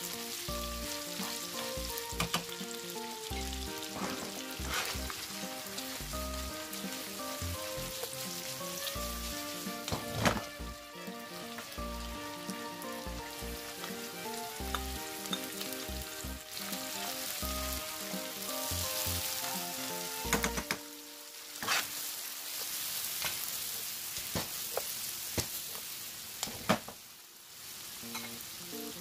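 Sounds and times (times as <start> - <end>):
light background music: 0.0 - 22.0
meat sizzling in a frying pan: 0.0 - 29.0.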